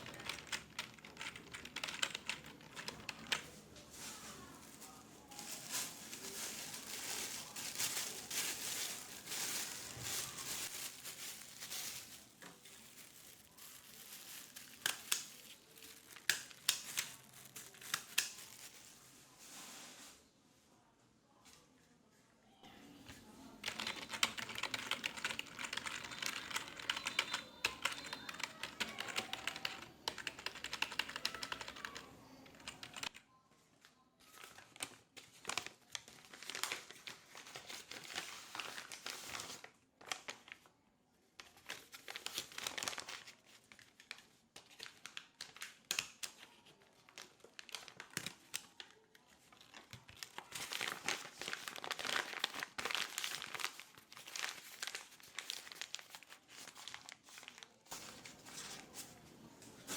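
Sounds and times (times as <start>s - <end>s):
keyboard typing: 0.0s - 3.5s, 23.6s - 33.2s.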